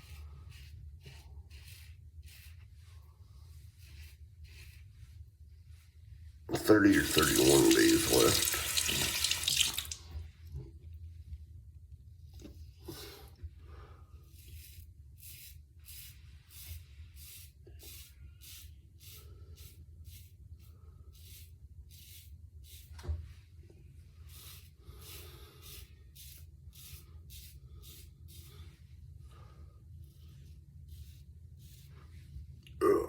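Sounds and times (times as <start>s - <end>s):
shaving brush swishing lather: 0.0s - 5.2s, 6.5s - 10.0s, 14.3s - 23.0s, 24.2s - 28.8s.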